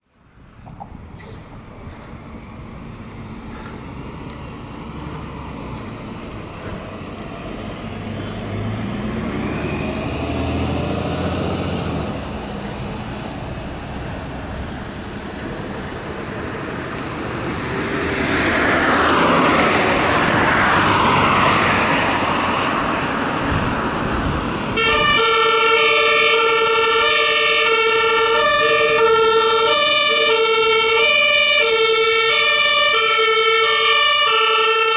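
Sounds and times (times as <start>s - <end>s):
vehicles passing: 0.0s - 34.9s
two-tone emergency siren: 24.8s - 34.9s.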